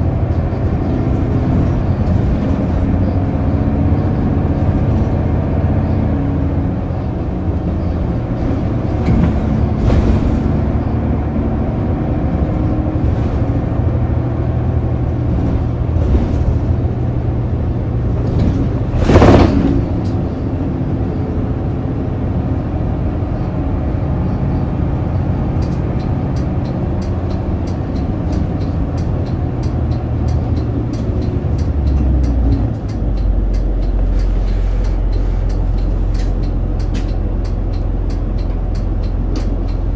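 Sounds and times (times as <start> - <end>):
diesel bus engine droning: 0.0 - 39.9
loud whoosh: 18.5 - 20.6
regular ticking: 25.6 - 39.9.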